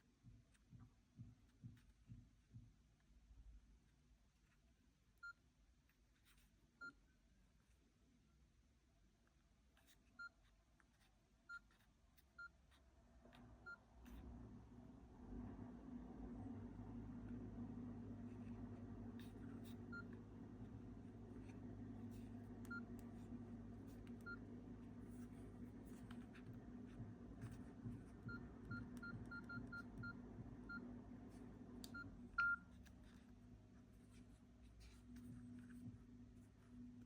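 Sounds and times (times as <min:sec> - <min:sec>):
low hum: 0:13.6 - 0:37.0
phone keypad beeps: 0:28.2 - 0:30.8, 0:31.9 - 0:32.7.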